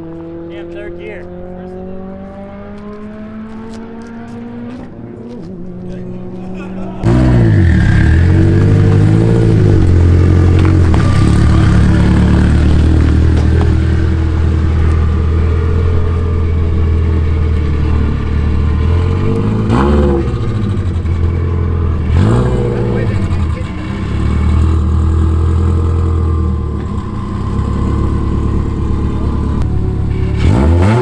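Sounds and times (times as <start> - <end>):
car engine running hard: 0.0 - 31.0.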